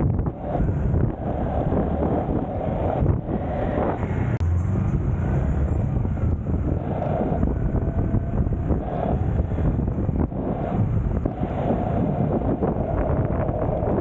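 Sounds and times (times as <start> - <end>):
road traffic noise: 0.0 - 14.0
wind rushing over microphone: 0.0 - 14.0
motorcycle engine: 3.6 - 11.4.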